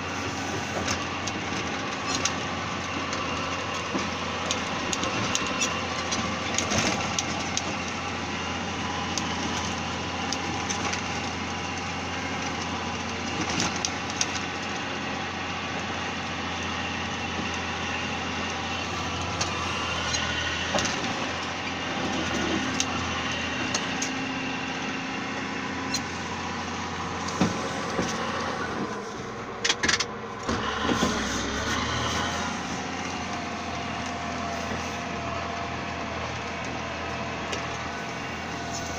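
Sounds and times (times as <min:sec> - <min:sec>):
diesel engine running: 0:00.0 - 0:38.9
sharp clanks and knocks: 0:29.6 - 0:32.3.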